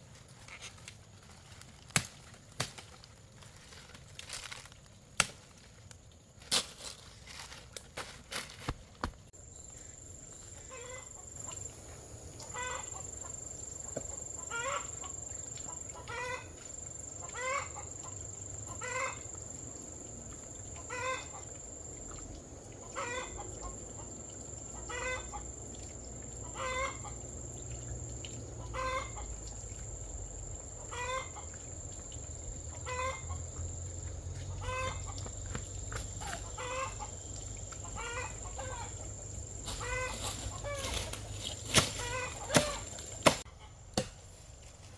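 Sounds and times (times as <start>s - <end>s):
chickens clucking: 10.7s - 11.8s, 12.4s - 16.6s, 17.2s - 19.2s, 26.4s - 27.2s, 30.8s - 31.6s, 32.7s - 33.7s, 34.4s - 43.8s.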